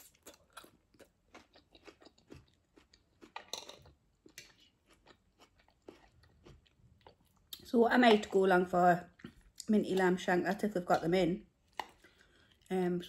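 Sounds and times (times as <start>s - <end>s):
close-up chewing: 0.0s - 7.6s.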